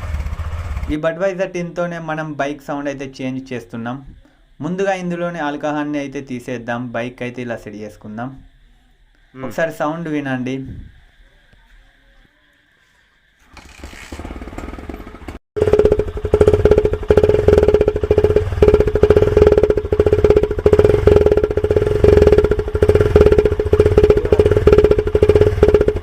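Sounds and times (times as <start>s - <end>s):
motorcycle engine rattling putter: 13.4s - 26.0s.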